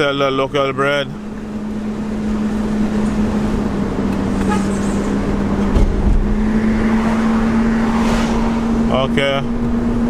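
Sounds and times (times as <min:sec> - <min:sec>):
car engine running: 0:00.0 - 0:10.0
tyre and road noise: 0:00.0 - 0:10.0
low bump: 0:05.6 - 0:07.0.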